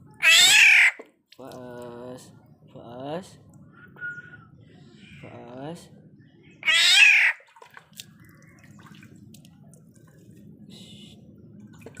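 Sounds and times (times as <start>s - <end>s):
water dripping and clicking: 7.5s - 10.2s.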